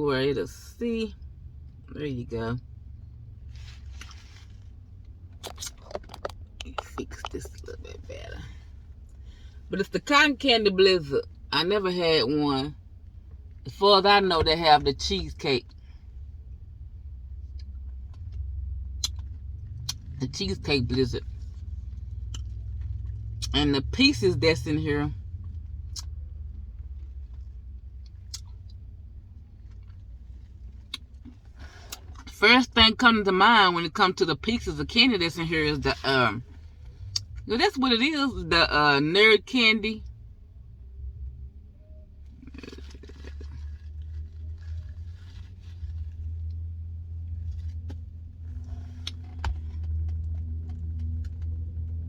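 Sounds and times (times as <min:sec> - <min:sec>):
car engine rumble: 0:00.0 - 0:52.0
person chewing: 0:42.4 - 0:46.2.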